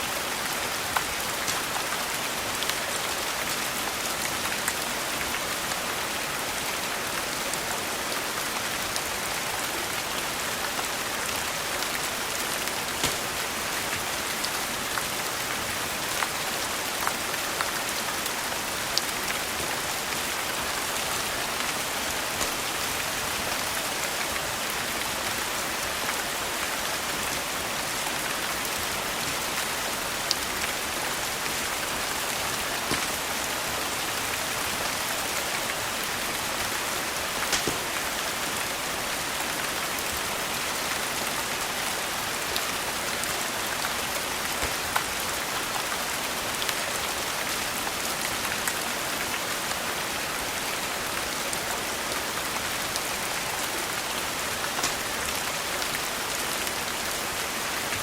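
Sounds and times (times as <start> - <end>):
steady rain: 0.0 - 58.0
wood fire crackling: 0.9 - 1.9, 12.1 - 14.6, 20.0 - 24.1, 29.4 - 34.8, 35.6 - 38.9, 54.6 - 55.2.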